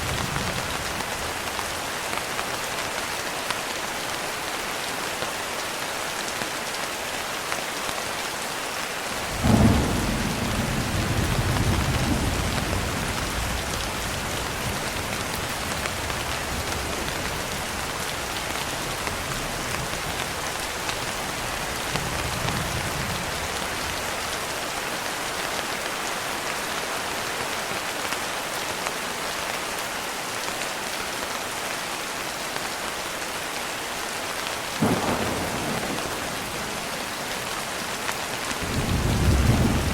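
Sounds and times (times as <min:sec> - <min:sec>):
rain pattering on a window: 0:00.0 - 0:39.9
thunder clap rolling: 0:09.3 - 0:14.7, 0:34.8 - 0:37.5, 0:38.6 - 0:39.9
faint thunder rumble: 0:09.3 - 0:18.5, 0:34.8 - 0:39.9.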